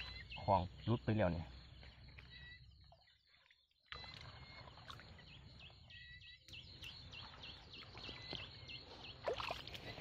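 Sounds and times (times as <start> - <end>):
faint bird chirps: 0.0 - 10.0.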